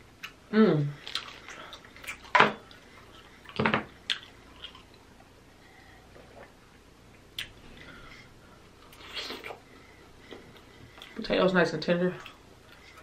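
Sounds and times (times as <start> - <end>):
person chewing: 1.0 - 5.3, 8.7 - 9.7
wet mouth clicks: 7.4 - 7.6.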